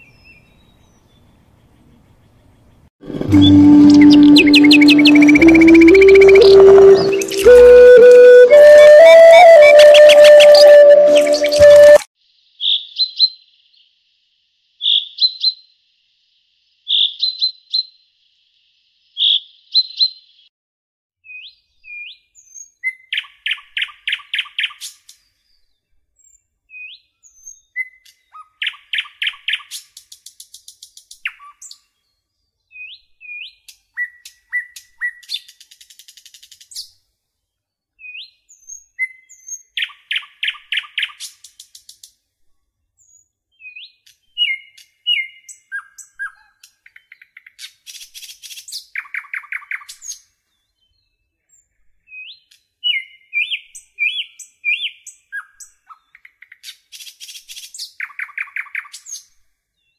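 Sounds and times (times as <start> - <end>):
bird chirping and trilling: 3.1 - 12.0.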